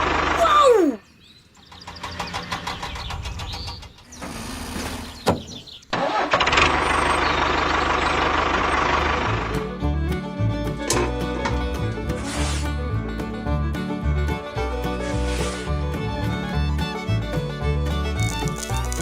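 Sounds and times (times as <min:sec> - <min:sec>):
small engine running: 0:06.0 - 0:11.4, 0:15.2 - 0:19.0
small engine cranking: 0:18.1 - 0:19.0.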